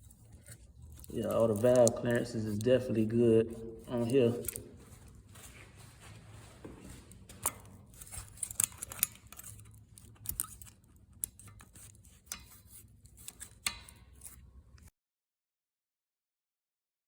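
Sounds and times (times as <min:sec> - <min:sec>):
tools and small parts clicking: 0:00.0 - 0:03.0, 0:03.8 - 0:05.1, 0:07.3 - 0:14.5.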